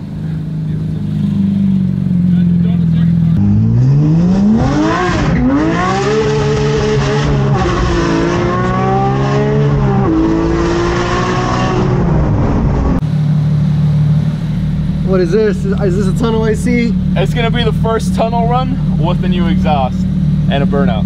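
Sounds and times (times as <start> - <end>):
car engine revving through gears: 3.3 - 13.0.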